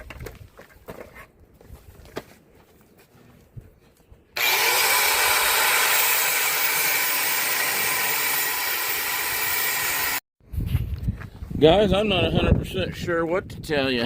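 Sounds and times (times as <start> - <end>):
angle grinder cutting steel: 4.4 - 10.2.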